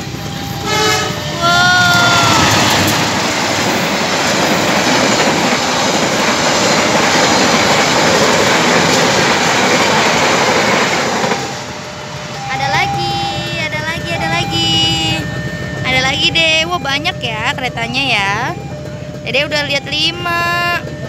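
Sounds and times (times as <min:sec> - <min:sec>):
train wheels rumbling on rails: 0:00.0 - 0:21.0
train horn: 0:00.5 - 0:03.0.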